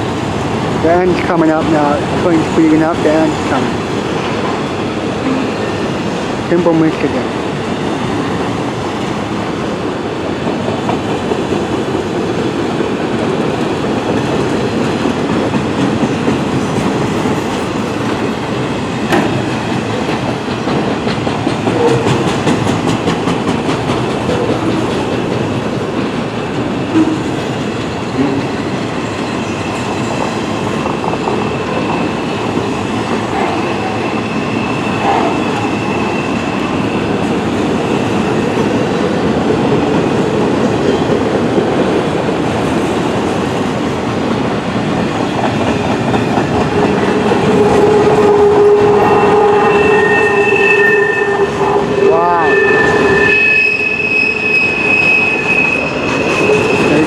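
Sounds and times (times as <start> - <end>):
steel wheels rumbling on rail: 0.0 - 57.0
wheels clacking over rail joints: 10.4 - 50.0
faint wheel squeal: 49.0 - 57.0.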